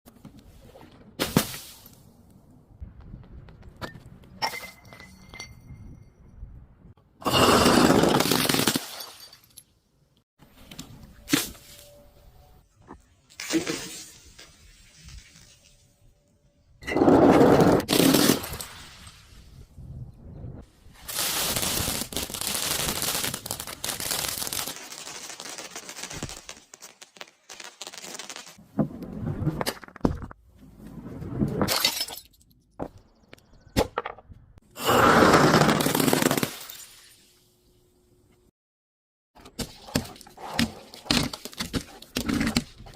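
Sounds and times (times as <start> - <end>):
glass bottles shattering: 7.2 - 9.7, 31.6 - 32.4.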